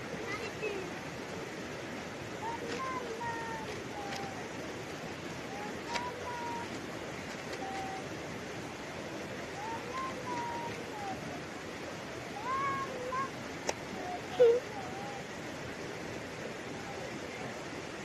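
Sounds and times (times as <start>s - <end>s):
water rushing: 0.0s - 18.0s
short high wavering calls: 7.4s - 8.2s, 9.5s - 11.6s, 12.3s - 15.3s.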